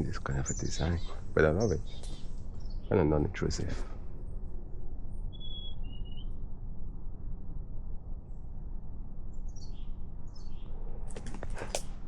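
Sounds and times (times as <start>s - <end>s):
songbird calling: 0.0s - 3.4s, 5.3s - 6.3s
steady low rumble: 0.0s - 12.0s.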